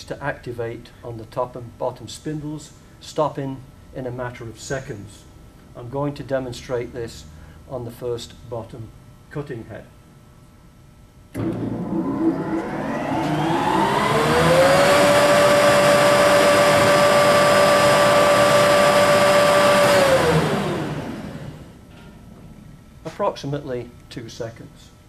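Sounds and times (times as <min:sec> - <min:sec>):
planer whining: 0:11.4 - 0:21.7.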